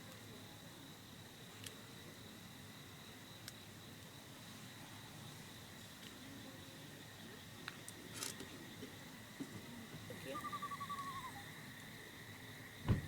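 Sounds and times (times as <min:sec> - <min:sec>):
insect drone: 0:00.0 - 0:13.0
small animal trill: 0:10.2 - 0:11.5.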